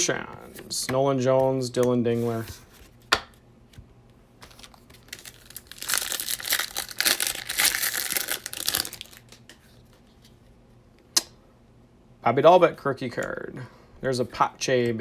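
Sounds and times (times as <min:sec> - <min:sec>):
foil wrapper tearing and crinkling: 0:04.5 - 0:09.5.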